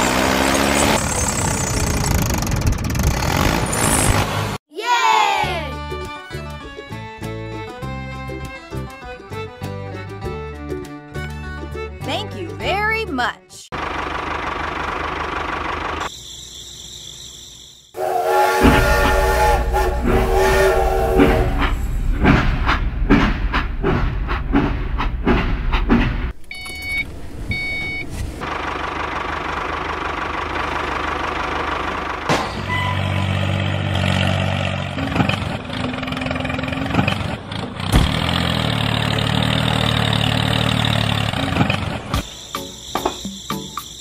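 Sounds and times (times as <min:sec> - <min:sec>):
engine running with knocks: 0:00.0 - 0:04.5, 0:13.8 - 0:16.1, 0:21.1 - 0:26.4, 0:28.1 - 0:43.7
train whistle blast: 0:18.0 - 0:21.9
rhythmic train clacking: 0:18.1 - 0:26.0.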